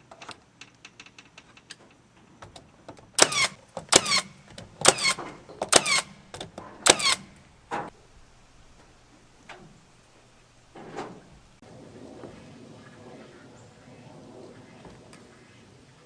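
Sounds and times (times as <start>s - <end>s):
hammer driving nails into wood: 3.2s - 7.9s.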